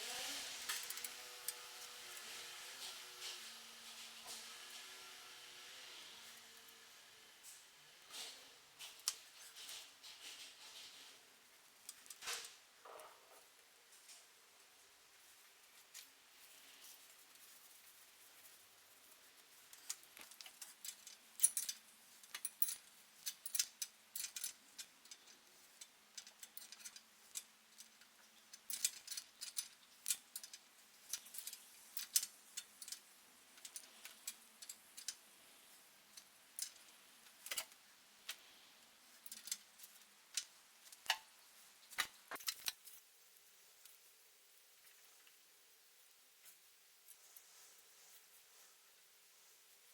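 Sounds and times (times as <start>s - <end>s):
metal parts and tools clicking: 0.6s - 1.7s, 19.7s - 35.3s, 36.1s - 38.4s, 39.1s - 43.0s.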